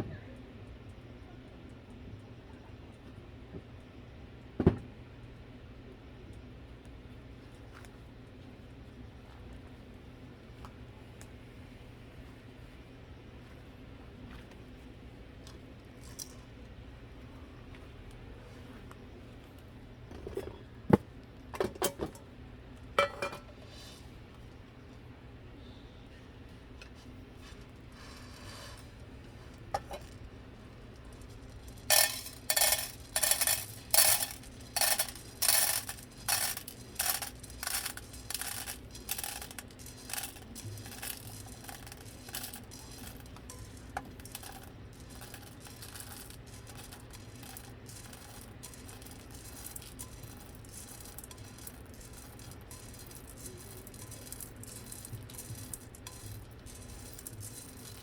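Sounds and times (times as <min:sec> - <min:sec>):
coffee beans rattling in roaster: 0:15.4 - 0:16.5, 0:20.0 - 0:20.7, 0:21.5 - 0:24.1, 0:26.7 - 0:58.0.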